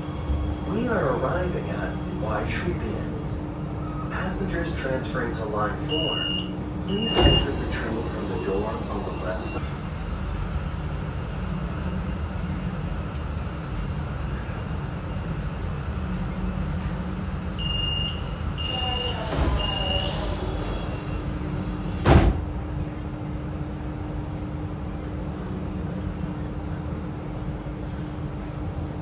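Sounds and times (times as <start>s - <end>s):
train low rumble: 0.0s - 29.0s
door chime beeps: 5.8s - 9.6s
sliding doors thud: 6.8s - 9.6s, 19.0s - 22.6s.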